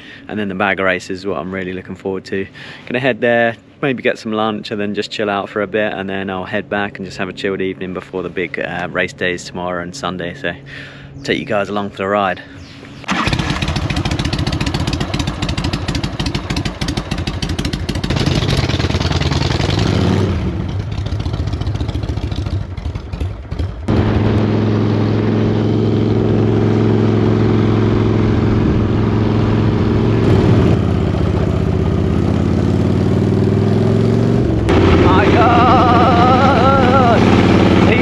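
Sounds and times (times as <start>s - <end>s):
motorcycle engine riding off: 13.0s - 38.0s.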